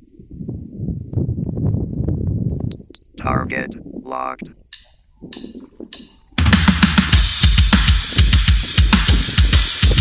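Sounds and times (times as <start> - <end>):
wind buffeting microphone: 0.0 - 6.5, 7.4 - 10.0
short high electronic beeps: 2.7 - 3.2.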